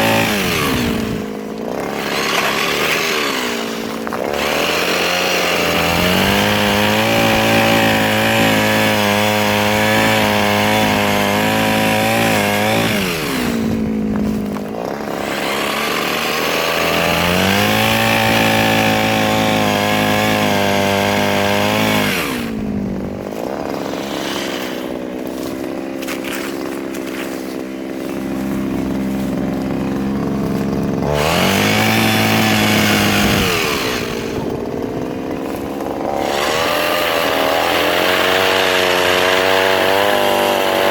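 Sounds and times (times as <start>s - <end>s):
mini chainsaw revving: 0.0s - 40.9s.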